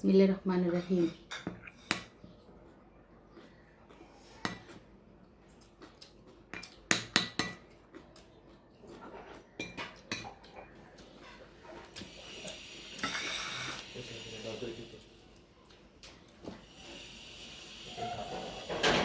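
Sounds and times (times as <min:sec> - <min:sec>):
cutlery and dishes clinking: 0:06.5 - 0:07.7, 0:09.1 - 0:12.1, 0:13.0 - 0:13.8, 0:17.9 - 0:19.0.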